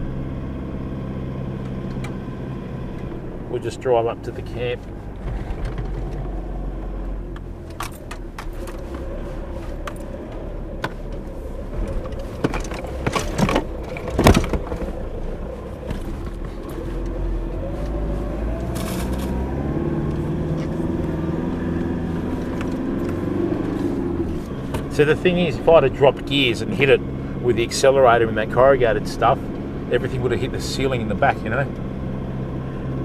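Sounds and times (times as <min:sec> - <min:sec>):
vehicle engine running: 0:00.0 - 0:33.0
gear rattling and clicking: 0:05.1 - 0:06.4, 0:07.3 - 0:17.2.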